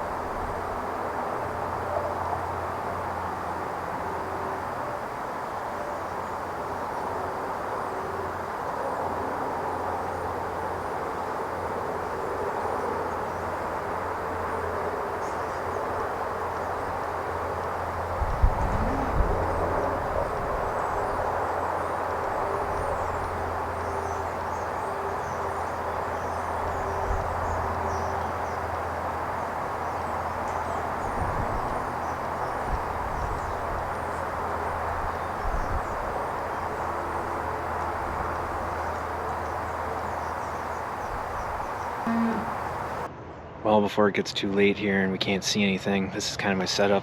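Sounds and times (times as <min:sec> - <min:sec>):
outdoor rumble and hiss: 0:00.0 - 0:47.0
low hum: 0:18.0 - 0:23.7.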